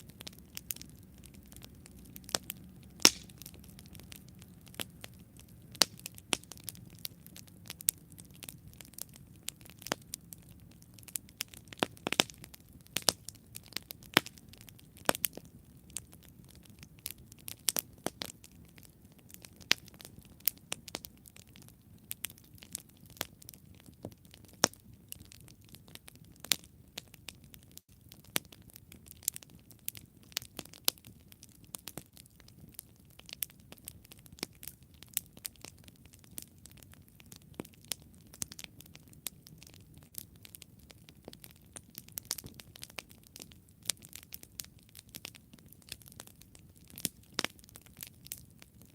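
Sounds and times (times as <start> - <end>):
campfire crackling and popping: 0.0 - 48.9.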